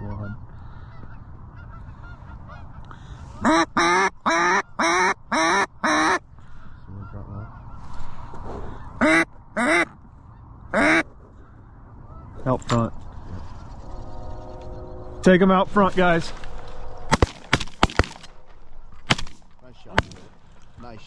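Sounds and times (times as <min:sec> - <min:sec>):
waterfowl call honking: 0:00.0 - 0:12.6.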